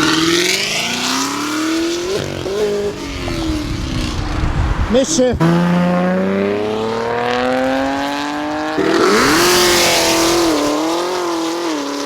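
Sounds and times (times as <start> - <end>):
car engine revving: 0.0 - 12.0
loud rushing noise: 2.1 - 7.9.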